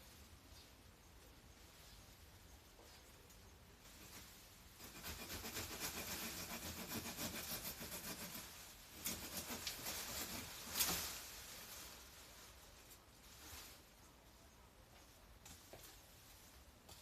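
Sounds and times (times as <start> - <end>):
hand saw sawing branch: 4.8 - 11.0.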